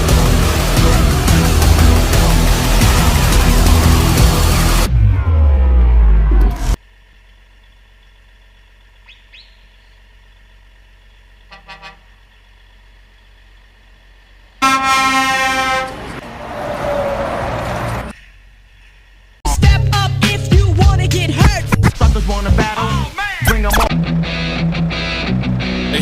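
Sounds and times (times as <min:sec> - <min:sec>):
truck horn blast: 0:00.0 - 0:04.6, 0:11.5 - 0:12.2, 0:14.6 - 0:16.2
rushing noise: 0:00.0 - 0:06.8.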